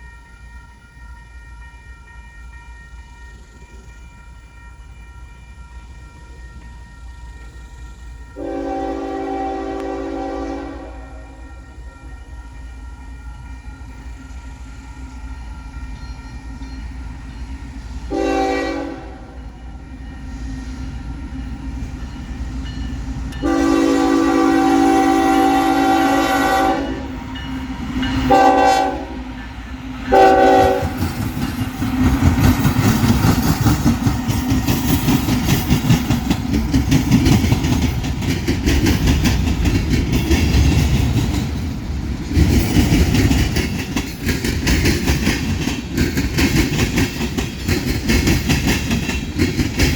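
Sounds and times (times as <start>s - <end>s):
train passing with rumble: 0.0s - 49.9s
locomotive horn blasts: 8.4s - 11.4s, 18.1s - 19.4s, 23.4s - 27.1s, 28.3s - 29.2s, 30.1s - 31.0s
wheels clacking over rail joints: 29.3s - 49.9s.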